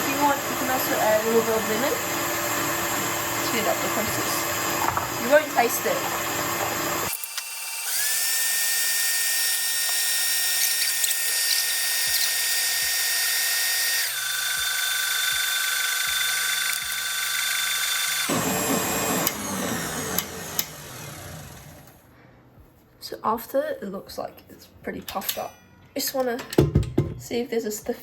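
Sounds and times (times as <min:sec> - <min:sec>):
stand mixer whisking: 0:00.0 - 0:07.1, 0:14.4 - 0:21.9.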